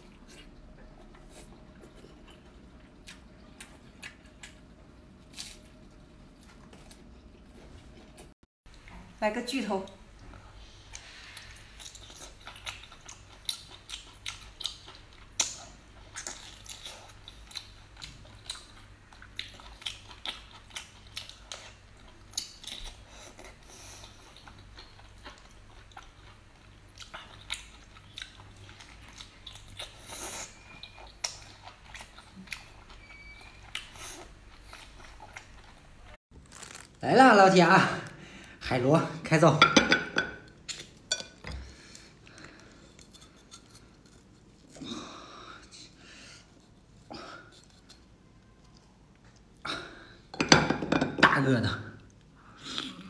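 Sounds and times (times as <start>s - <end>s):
chewing and biting octopus: 11.0s - 36.9s.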